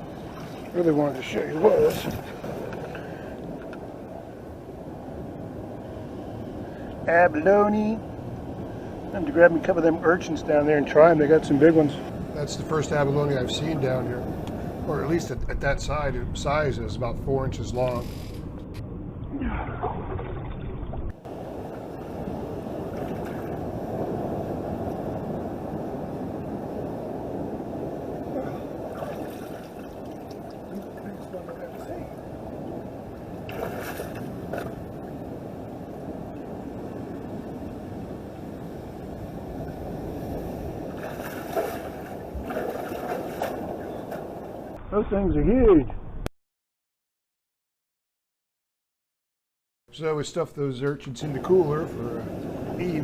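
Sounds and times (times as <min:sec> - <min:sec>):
seawater washing over rocks: 0:00.0 - 0:03.0, 0:21.3 - 0:24.6, 0:28.4 - 0:32.3, 0:33.4 - 0:35.2, 0:39.7 - 0:44.4, 0:51.3 - 0:53.0
waves on rocky shore: 0:00.0 - 0:15.4, 0:21.2 - 0:44.8, 0:51.2 - 0:53.0
wind on microphone: 0:07.8 - 0:46.2, 0:51.4 - 0:53.0.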